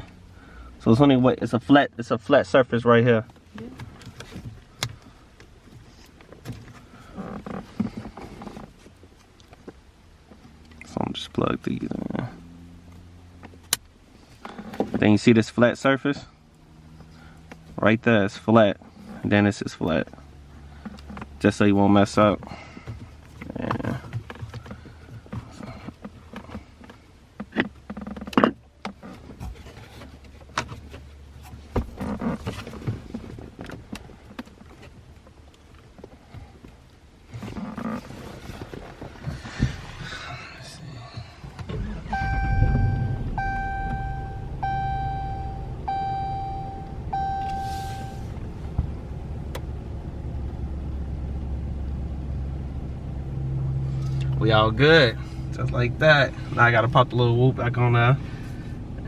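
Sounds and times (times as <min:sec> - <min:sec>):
car engine starting and idling: 0:00.0 - 0:59.0
steady low hum: 0:37.2 - 0:54.4
dashboard warning chime: 0:41.8 - 0:48.3.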